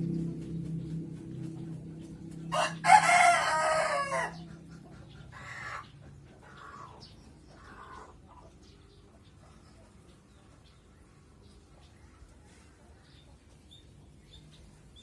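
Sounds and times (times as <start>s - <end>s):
rooster crowing: 2.5s - 4.4s.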